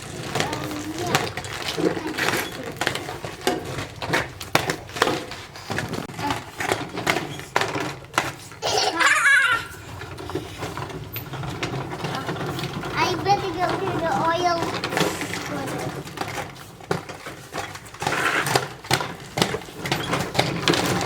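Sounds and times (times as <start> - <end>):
child laughing: 8.6 - 10.0.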